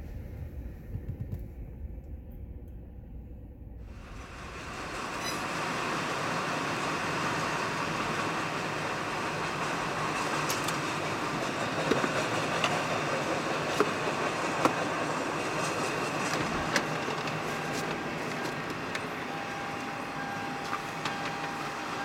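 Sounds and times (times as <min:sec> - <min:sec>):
freight train wheels rumbling: 0:03.7 - 0:22.0.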